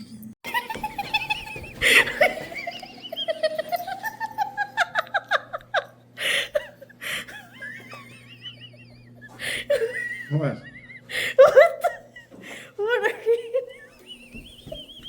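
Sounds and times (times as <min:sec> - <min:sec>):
person giggling and laughing: 0:00.5 - 0:15.0
breathy gasps: 0:12.4 - 0:12.8.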